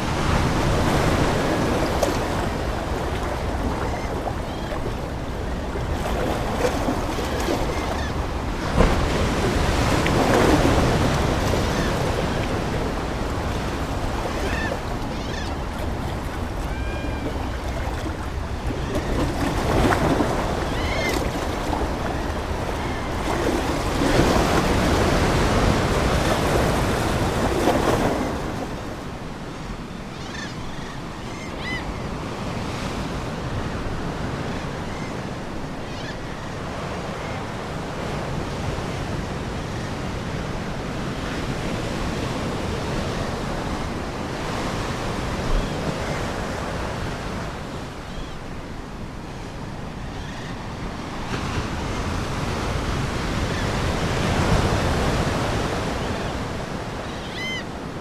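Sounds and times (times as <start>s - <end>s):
ocean waves breaking on shore: 0.0s - 58.0s
seagull calls: 13.9s - 23.4s, 57.0s - 57.8s.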